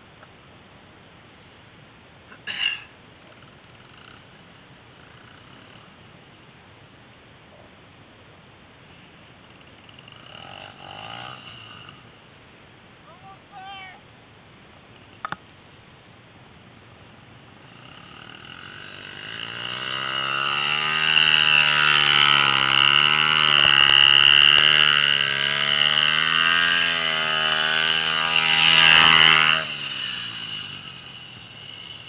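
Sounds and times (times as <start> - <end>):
pit bike engine revving: 3.4 - 6.1, 9.4 - 12.2, 17.6 - 32.0.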